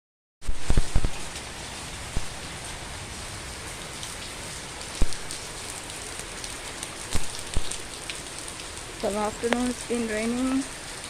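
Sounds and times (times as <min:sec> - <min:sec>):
steady rain: 0:00.4 - 0:11.0.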